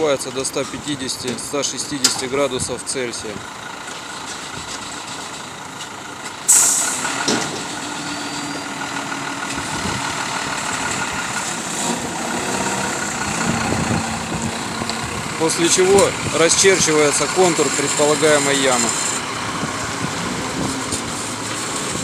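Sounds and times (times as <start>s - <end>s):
vehicle engine idling: 0.0s - 22.0s
short hiss of air: 6.5s - 7.3s.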